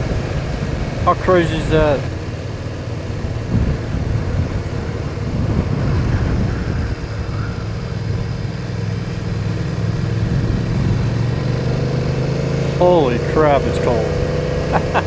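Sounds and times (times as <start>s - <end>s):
motorcycle engine running: 0.0s - 15.0s
wind noise: 3.0s - 11.5s.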